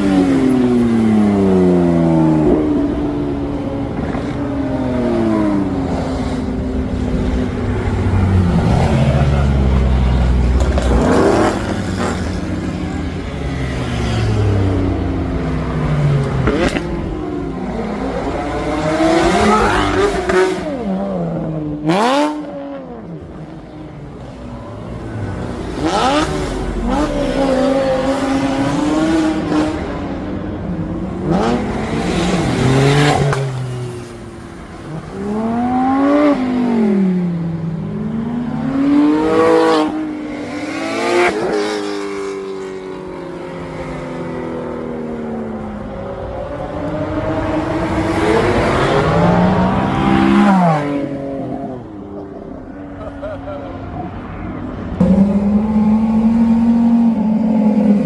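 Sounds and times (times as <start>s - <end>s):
cars revving and accelerating: 0.0s - 58.0s.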